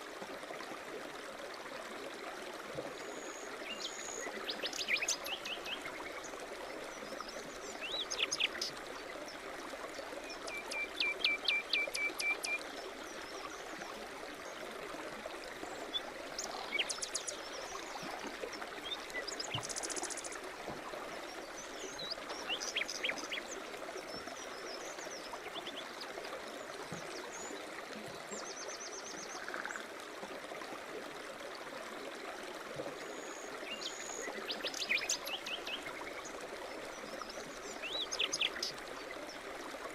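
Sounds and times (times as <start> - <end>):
stream trickling: 0.0 - 39.9
songbirds singing: 3.7 - 9.4, 15.8 - 17.9, 21.3 - 26.0, 33.7 - 39.4.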